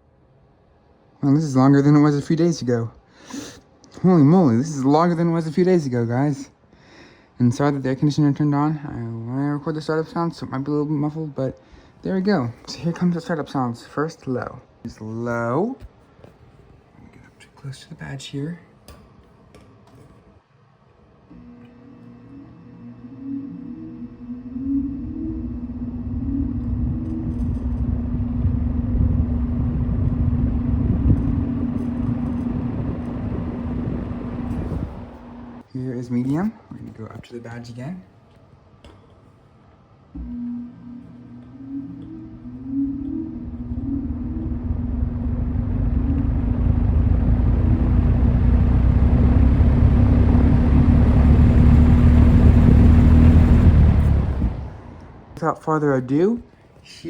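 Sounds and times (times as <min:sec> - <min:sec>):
box fan motor hum: 0:21.4 - 0:35.6, 0:40.3 - 0:55.4
airflow buffeting microphone: 0:22.8 - 0:35.6, 0:40.2 - 0:55.4
air rushing from fan blades: 0:23.2 - 0:35.6, 0:42.2 - 0:55.3.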